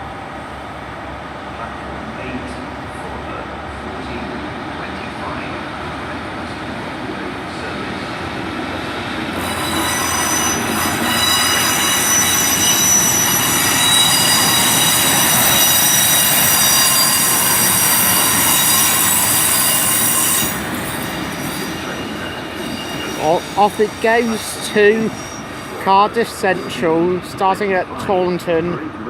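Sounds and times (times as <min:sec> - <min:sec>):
diesel train rumble: 0:00.0 - 0:29.0
train wheels squealing on rails: 0:07.5 - 0:27.7.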